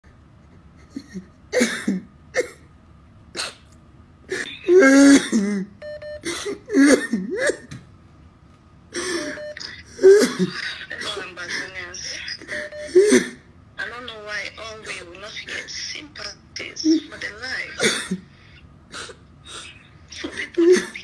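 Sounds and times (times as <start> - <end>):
person coughing: 1.5 - 2.7, 4.3 - 7.7, 17.8 - 18.3.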